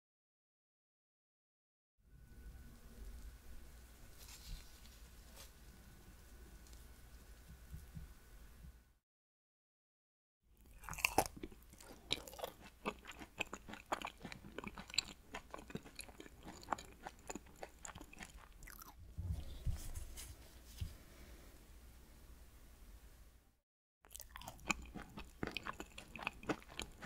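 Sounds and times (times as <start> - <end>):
chewing crunchy donut: 10.6 - 19.0, 24.1 - 27.0.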